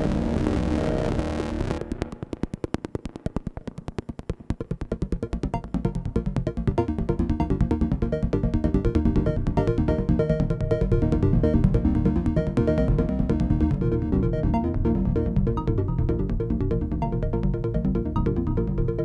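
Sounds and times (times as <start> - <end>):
dense held synthesizer sound: 0.0 - 2.4
synthesizer plucked notes with echoes: 0.0 - 19.0.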